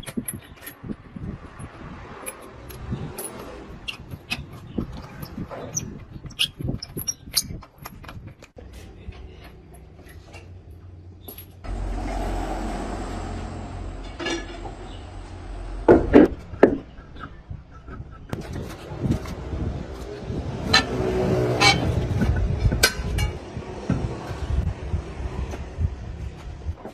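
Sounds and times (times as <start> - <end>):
workshop knocks and clicks: 15.8 - 17.4, 21.6 - 24.5
loud knocks: 15.9 - 16.9.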